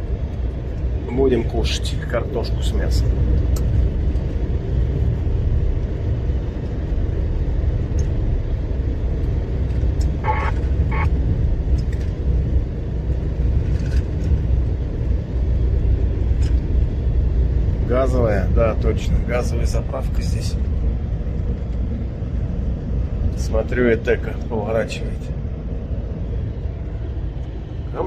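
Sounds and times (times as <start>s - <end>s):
truck engine and road noise: 0.0s - 28.0s
brief high tones: 10.2s - 11.1s.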